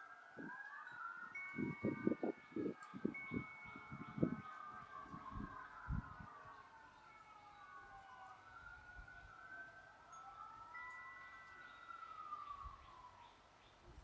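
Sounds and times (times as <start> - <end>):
wind chime tone: 0.0 - 13.4
faint siren wailing: 0.0 - 14.0.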